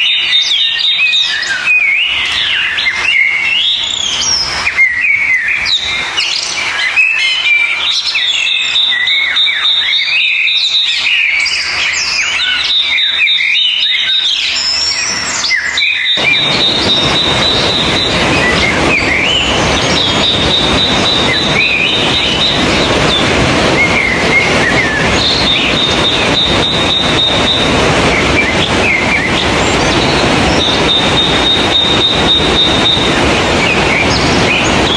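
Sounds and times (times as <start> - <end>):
birds singing and chirping: 0.0 - 34.9
high-pitched insect drone: 16.2 - 34.9
steady rushing noise: 16.2 - 34.9.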